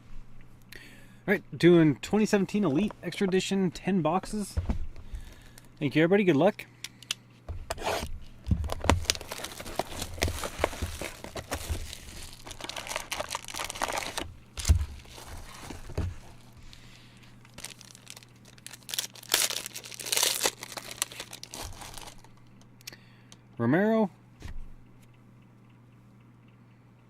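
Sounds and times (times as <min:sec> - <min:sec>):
packaging rustling: 0:07.6 - 0:22.6
packaging crinkling and tearing: 0:07.7 - 0:22.6.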